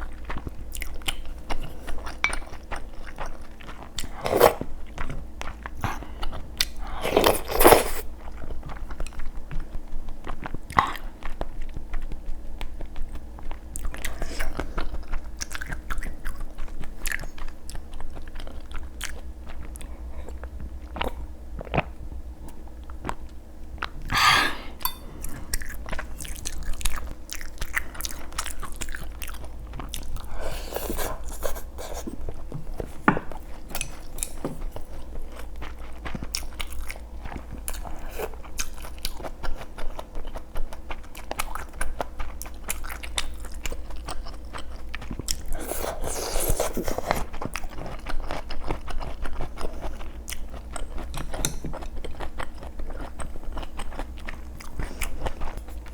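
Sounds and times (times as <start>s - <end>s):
person chewing and biting food: 0.0s - 9.4s
faint steady hum: 0.0s - 55.9s.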